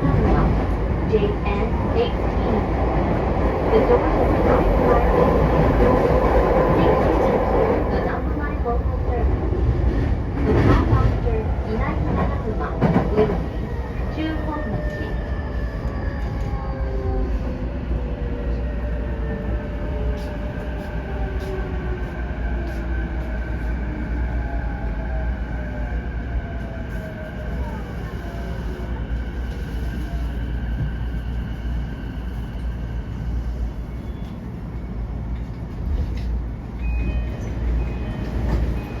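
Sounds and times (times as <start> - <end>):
train wheels rumbling on rails: 0.0 - 24.4, 25.5 - 39.0.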